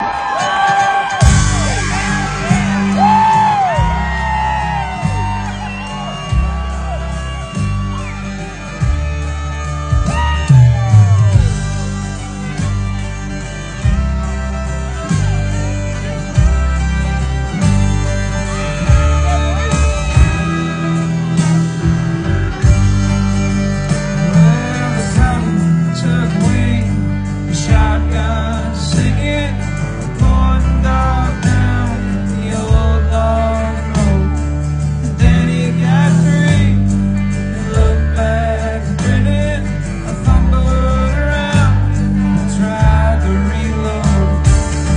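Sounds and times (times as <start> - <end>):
live country band playing: 0.0 - 44.9
person singing: 24.1 - 44.9.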